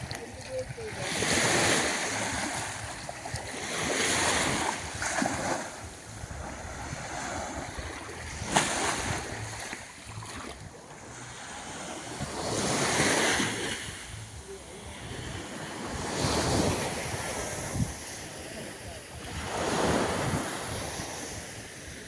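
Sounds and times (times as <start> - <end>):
wind buffeting microphone: 0.0 - 9.8, 12.1 - 18.2
waves washing onto sand: 0.0 - 22.0.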